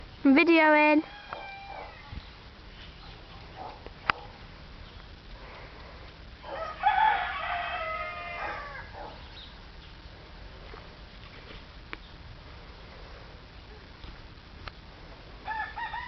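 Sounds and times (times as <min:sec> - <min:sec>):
rooster crowing: 0:01.0 - 0:02.2, 0:06.4 - 0:09.2, 0:15.4 - 0:16.0.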